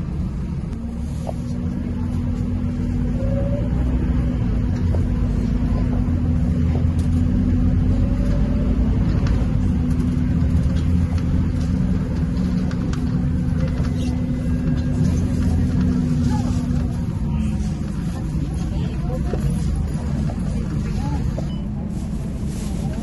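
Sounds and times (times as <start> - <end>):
bus engine running: 0.0 - 23.0.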